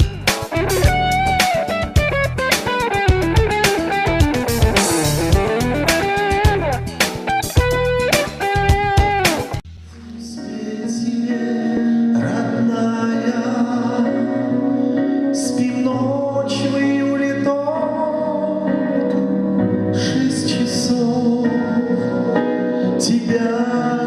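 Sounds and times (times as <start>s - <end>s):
live band playing: 0.0s - 9.6s.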